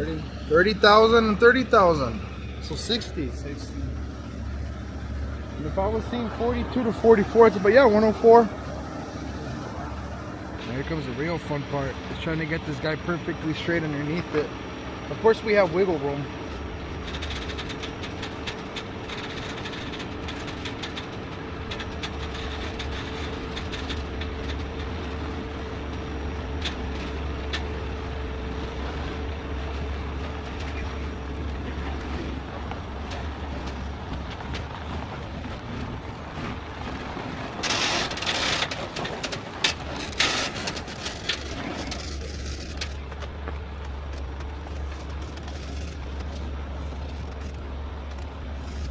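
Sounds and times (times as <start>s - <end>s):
diesel truck engine rumbling: 0.0s - 48.9s
light ticks and clanks: 16.4s - 36.0s.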